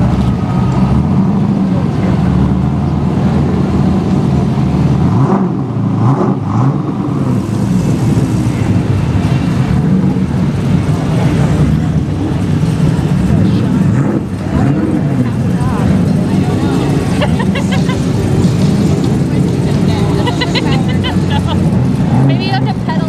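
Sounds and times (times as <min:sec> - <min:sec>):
vehicle engine revving: 0:00.0 - 0:23.0.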